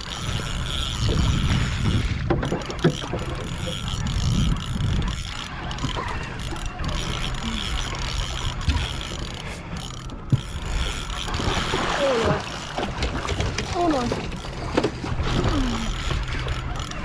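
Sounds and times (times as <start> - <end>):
fishing reel clicks: 0.0 - 12.8
water around a boat: 0.0 - 17.0
wind: 0.0 - 17.0.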